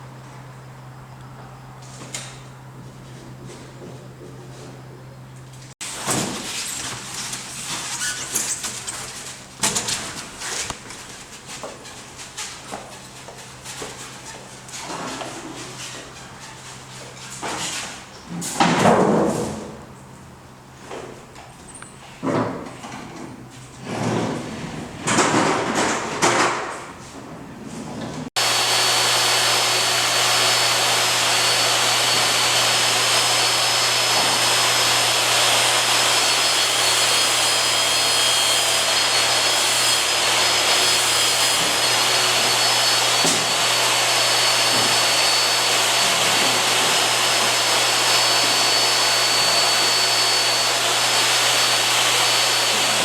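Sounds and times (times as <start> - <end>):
machine noise with high whine: 28.4 - 53.0.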